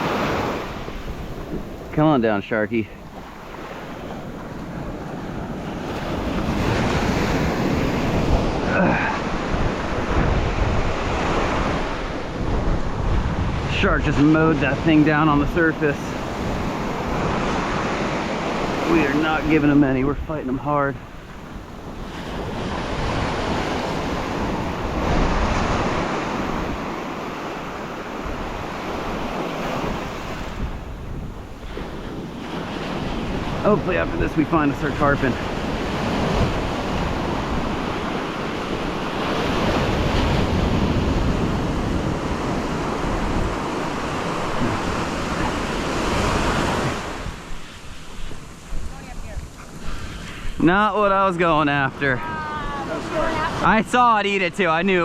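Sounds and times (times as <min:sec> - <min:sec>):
surf washing onto beach: 0:00.0 - 0:55.0
wind buffeting microphone: 0:00.0 - 0:55.0.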